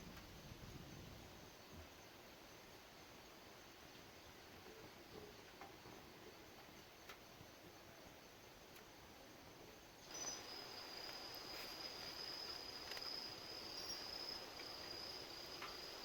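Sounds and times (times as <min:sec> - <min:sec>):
faint background hiss: 0:00.0 - 0:16.0
high-pitched insect trill: 0:10.0 - 0:16.0.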